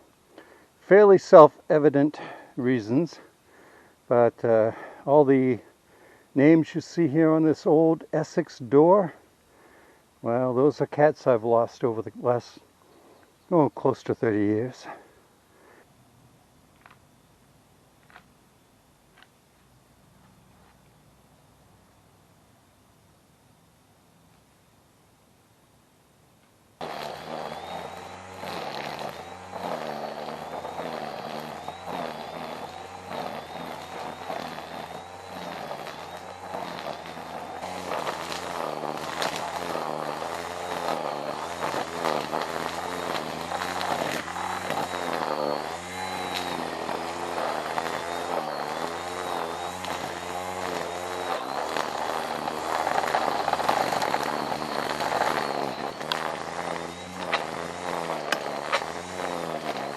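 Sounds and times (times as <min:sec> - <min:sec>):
small petrol engine running: 0:26.8 - 0:59.9.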